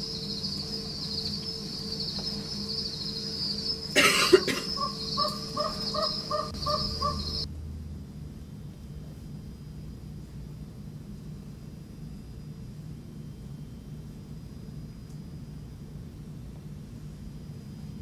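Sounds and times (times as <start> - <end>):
bird calling: 0.0 - 7.5
insect chirring: 0.0 - 7.5
low hum: 0.0 - 18.0.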